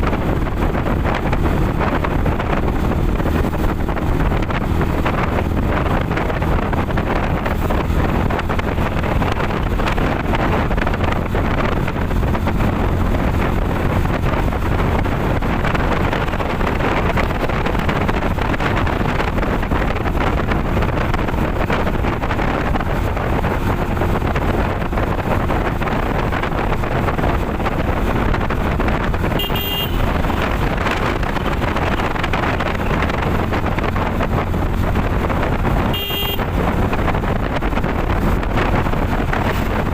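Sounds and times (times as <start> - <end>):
road and traffic noise: 0.0 - 39.9
wind buffeting microphone: 0.0 - 39.9
horn toot: 29.3 - 30.4, 35.8 - 36.6.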